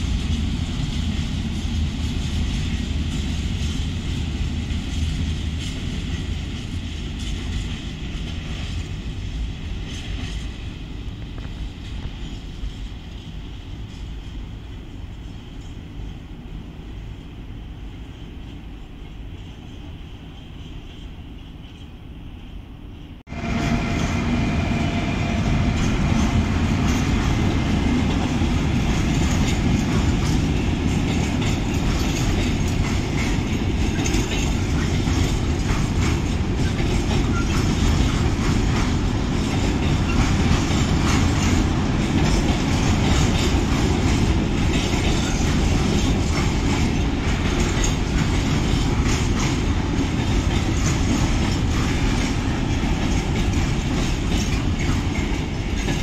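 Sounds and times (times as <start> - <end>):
freight train rail rumble: 0.0 - 56.0
wheels clacking over rail joints: 23.3 - 56.0.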